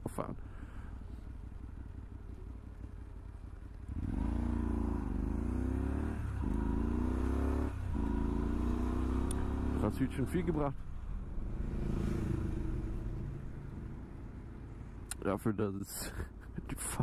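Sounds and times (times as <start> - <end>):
motorcycle engine accelerating: 1.1 - 15.1.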